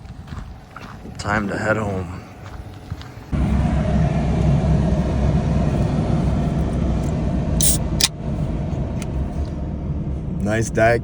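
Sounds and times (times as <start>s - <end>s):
truck engine idling: 0.0s - 11.0s
soda can opening: 7.6s - 8.1s.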